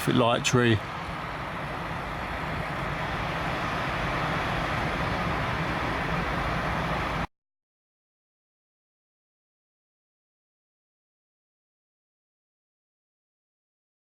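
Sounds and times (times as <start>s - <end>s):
passing vehicles rushing: 0.0s - 7.3s.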